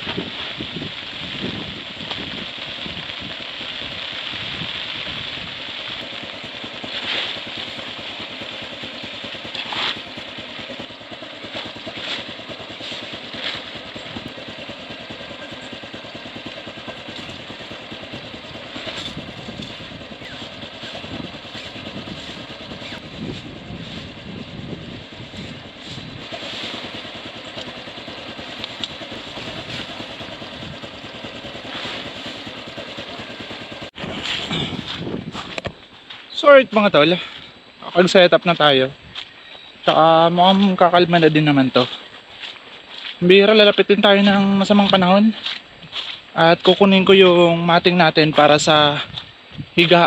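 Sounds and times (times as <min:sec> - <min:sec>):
gusting storm wind: 0:00.0 - 0:35.9.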